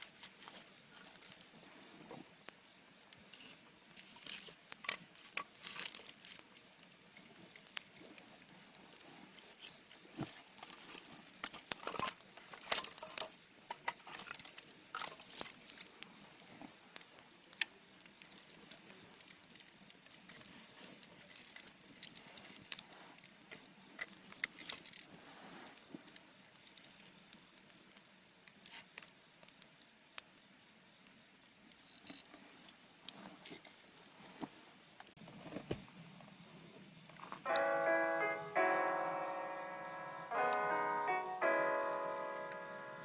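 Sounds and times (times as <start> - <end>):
crinkling rustles: 0.0 - 1.7, 3.1 - 29.7
faint background hiss: 0.0 - 43.0.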